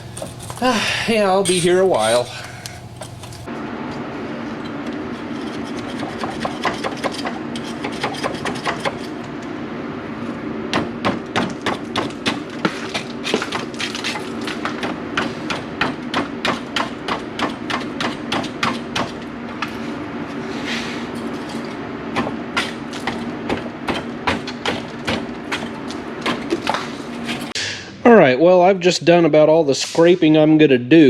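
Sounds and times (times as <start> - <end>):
hand scraper scraping grease: 0.0 - 3.4, 5.2 - 9.2
steady low hum: 0.0 - 28.5.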